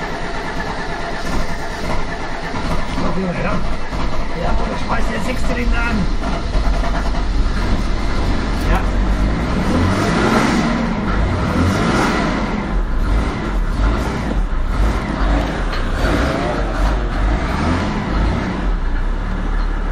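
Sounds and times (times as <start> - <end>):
diesel engine revving: 0.0 - 19.9.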